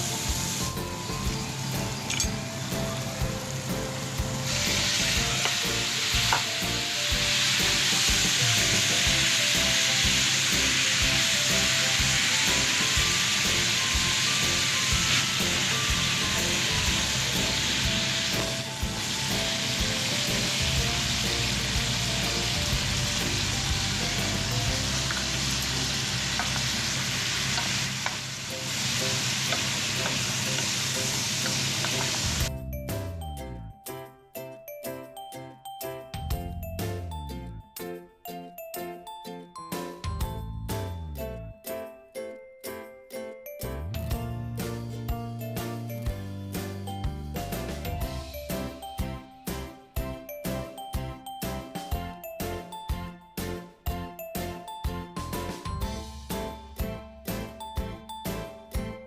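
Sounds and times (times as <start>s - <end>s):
food sizzling in a pan: 0.0s - 32.5s.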